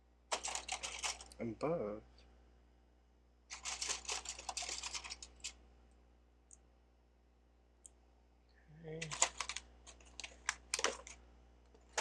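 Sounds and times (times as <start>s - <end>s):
plastic bricks clicking and rattling: 0.3s - 1.4s, 3.5s - 5.6s, 9.0s - 11.2s.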